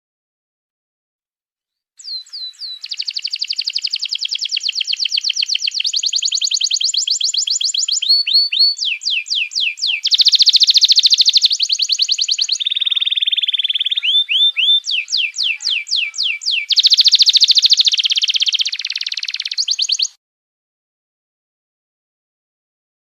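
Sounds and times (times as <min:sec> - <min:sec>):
songbird trills and whistles: 0:02.0 - 0:20.2.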